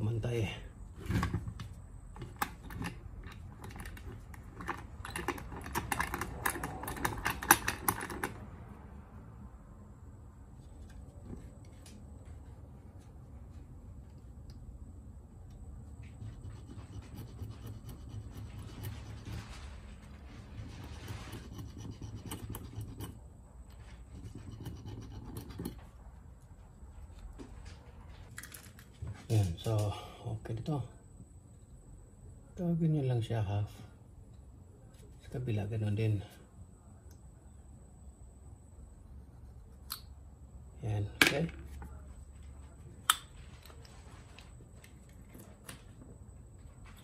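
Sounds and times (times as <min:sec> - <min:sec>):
hand tool clicks and scrapes: 0:02.2 - 0:08.4, 0:20.6 - 0:25.9
metal scraping: 0:16.0 - 0:26.0.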